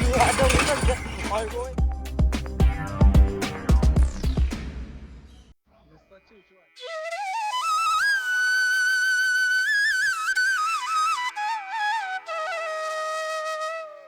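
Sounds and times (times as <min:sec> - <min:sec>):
solo flute melody: 0:06.8 - 0:14.0.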